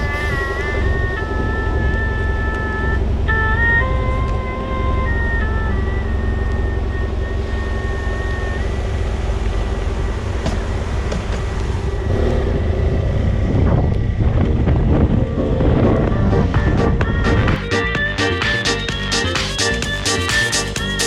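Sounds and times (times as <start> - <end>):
wind noise on microphone: 0.0 - 6.2, 11.7 - 17.6
motorcycle engine and road drone: 0.0 - 18.1.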